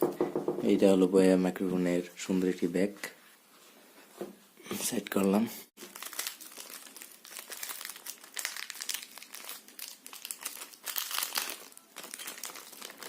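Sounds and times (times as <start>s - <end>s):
packaging crinkling: 5.8s - 13.0s.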